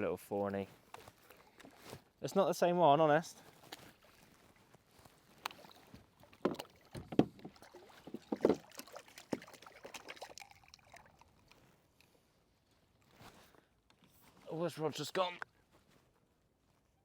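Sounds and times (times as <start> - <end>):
knocks and bumps on a kayak: 6.3 - 9.5.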